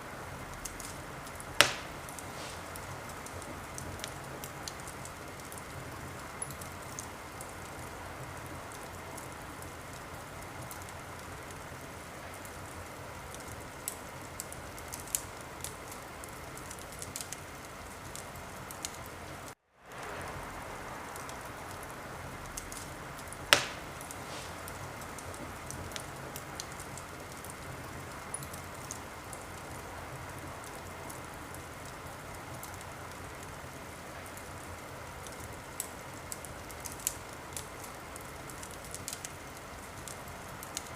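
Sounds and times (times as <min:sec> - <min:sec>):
wood fire crackling: 0:00.0 - 0:40.9
sharp loud fire pop: 0:01.6 - 0:02.8, 0:23.5 - 0:24.7.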